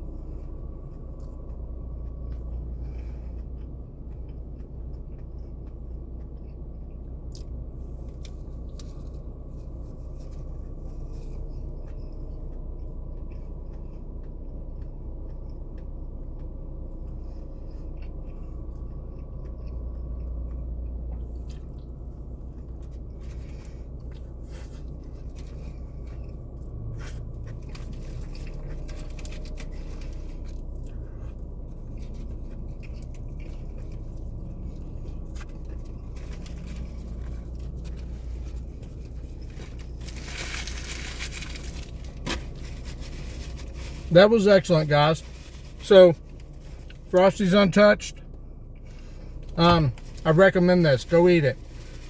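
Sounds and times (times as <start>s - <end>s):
person chewing food: 0.0s - 44.1s
low hum: 0.0s - 52.0s
crunching and rustling clicks: 17.9s - 44.1s.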